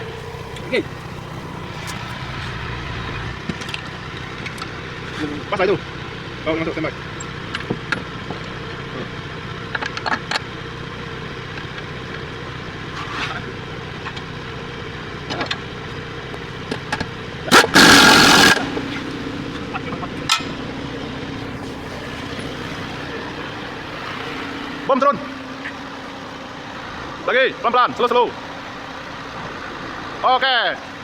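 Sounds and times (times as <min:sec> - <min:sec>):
engine idling: 0:00.0 - 0:31.0
light metal clicks and knocks: 0:09.7 - 0:10.5
loud hiss: 0:17.5 - 0:19.5.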